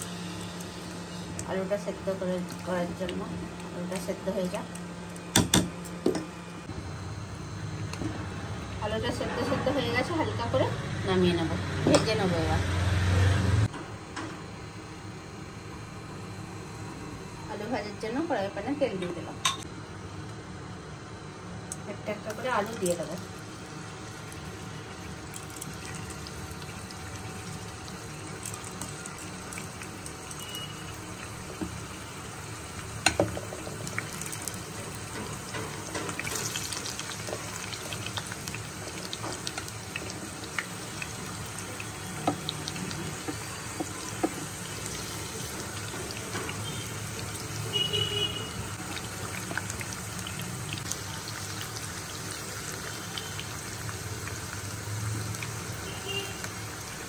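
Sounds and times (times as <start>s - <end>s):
potatoes sizzling in oil: 22.2s - 57.0s.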